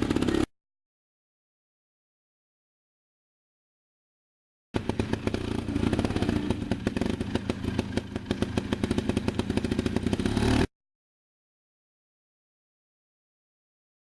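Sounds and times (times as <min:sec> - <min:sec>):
motorcycle engine low revs: 0:00.0 - 0:00.5, 0:04.8 - 0:10.7.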